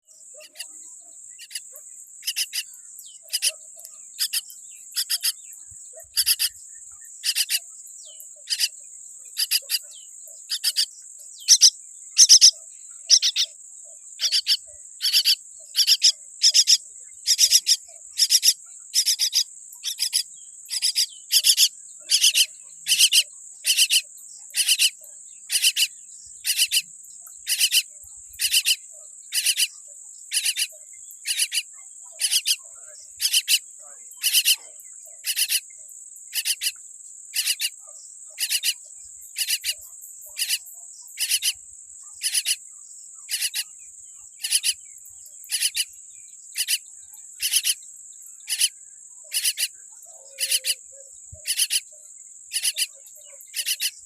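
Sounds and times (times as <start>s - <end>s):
baby bird raspy calls: 0.4s - 0.8s, 1.4s - 1.6s, 2.2s - 3.6s, 4.2s - 5.4s, 6.0s - 6.6s, 7.2s - 7.7s, 8.4s - 8.7s, 9.4s - 9.9s, 10.5s - 13.6s, 14.2s - 35.6s, 36.3s - 37.8s, 38.4s - 38.8s, 39.4s - 39.8s, 40.4s - 41.6s, 42.2s - 42.6s, 43.3s - 43.7s, 44.4s - 44.8s, 45.4s - 45.9s, 46.6s - 46.8s, 47.4s - 47.8s, 48.5s - 51.9s, 52.5s - 54.0s.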